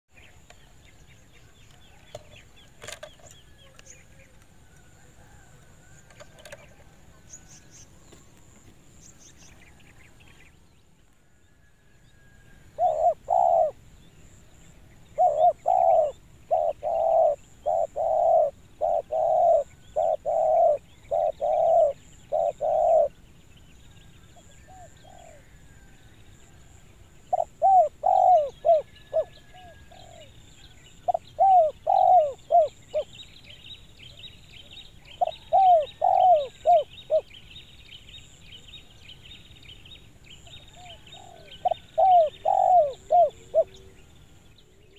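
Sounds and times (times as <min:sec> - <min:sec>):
birds chirping: 0:00.1 - 0:44.9
dove cooing: 0:12.7 - 0:13.8, 0:15.0 - 0:23.2, 0:24.6 - 0:25.8, 0:27.3 - 0:33.1, 0:35.0 - 0:37.3, 0:40.5 - 0:44.0.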